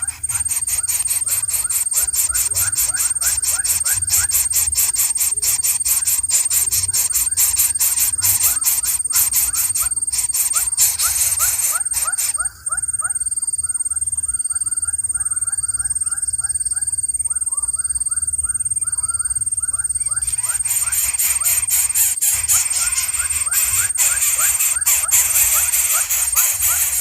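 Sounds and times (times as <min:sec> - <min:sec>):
young birds of prey cheeping: 0:00.0 - 0:12.9, 0:20.0 - 0:27.0.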